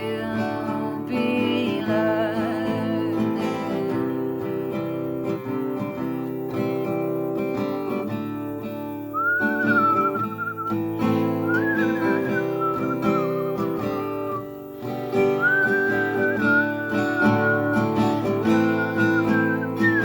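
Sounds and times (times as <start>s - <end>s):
acoustic guitar strumming: 0.0s - 20.0s
person whistling melody: 9.1s - 20.0s.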